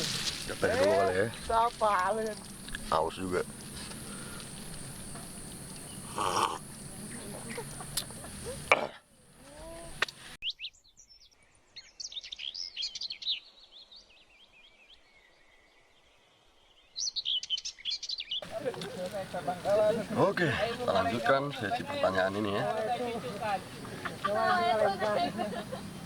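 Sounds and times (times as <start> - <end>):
background hiss: 0.0 - 10.4, 18.4 - 26.0
small birds chirping: 0.0 - 26.0.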